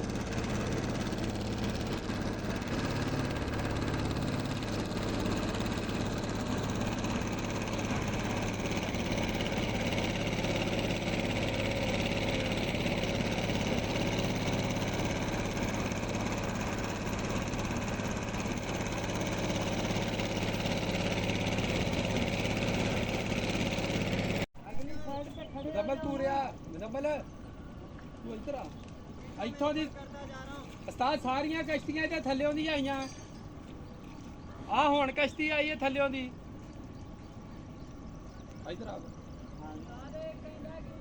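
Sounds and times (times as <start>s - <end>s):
engine idling: 0.0s - 24.5s.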